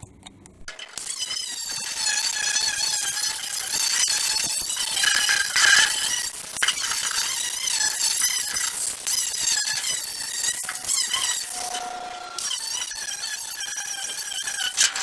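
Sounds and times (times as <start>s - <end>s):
wire wheel grinder scrubbing steel: 0.7s - 15.0s.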